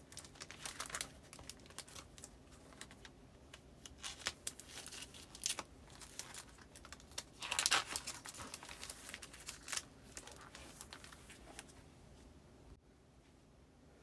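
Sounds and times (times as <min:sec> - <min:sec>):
paper crinkling and rustling: 0:00.0 - 0:11.9.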